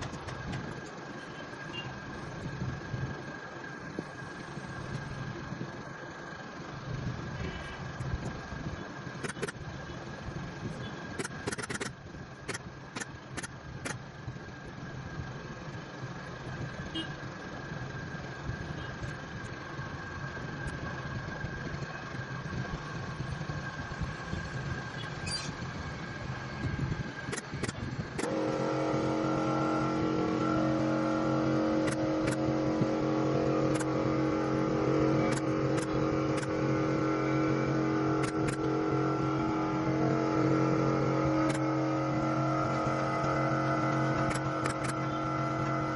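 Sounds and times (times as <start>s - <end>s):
motor humming: 0.0s - 45.9s
sharp clicks: 9.2s - 9.6s, 11.2s - 14.0s, 43.9s - 45.7s.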